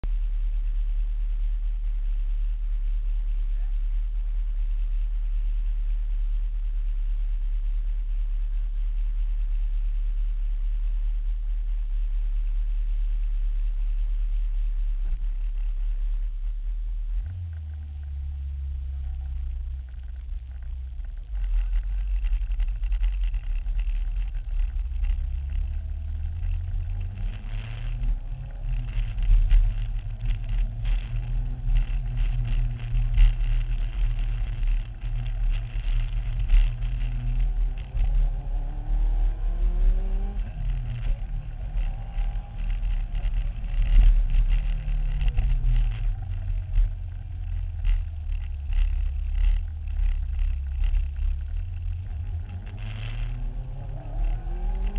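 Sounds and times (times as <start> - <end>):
engine revving: 17.2 - 54.9.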